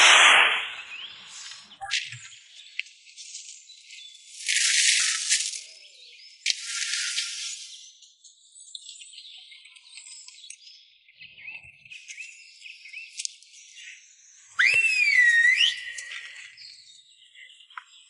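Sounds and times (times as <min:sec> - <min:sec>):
insects and birds chirping: 0:00.8 - 0:18.0
loud whistle-like call: 0:14.6 - 0:16.4.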